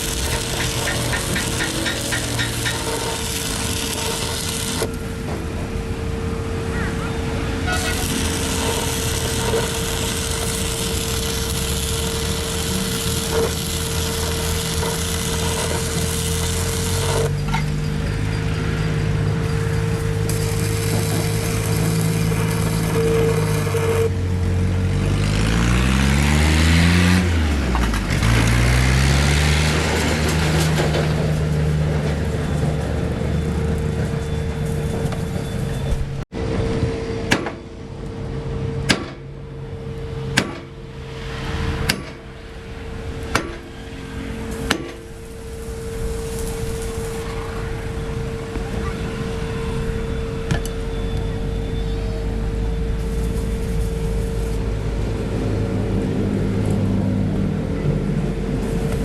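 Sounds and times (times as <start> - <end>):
motor running: 0.0 - 5.0, 7.7 - 17.5, 19.5 - 24.2
steady hum: 0.0 - 24.5.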